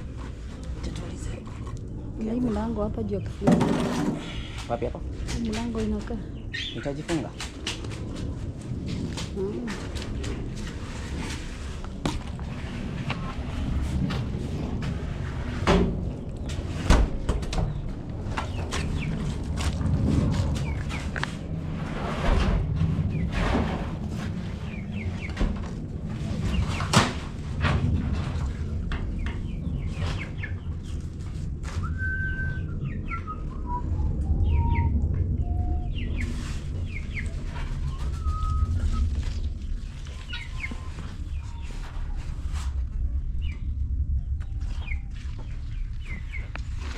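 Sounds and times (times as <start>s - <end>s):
steady low rumble: 0.0s - 46.9s
birds chirping: 4.2s - 7.6s, 16.1s - 19.5s, 31.8s - 42.2s.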